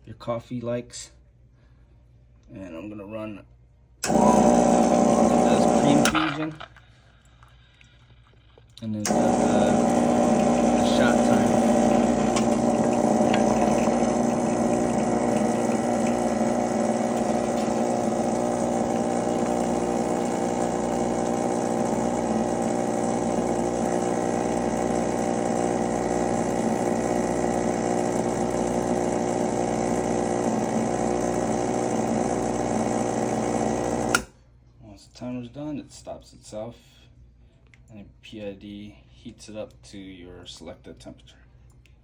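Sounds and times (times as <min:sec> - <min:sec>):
espresso machine pump humming: 0:04.0 - 0:06.6, 0:08.9 - 0:34.3.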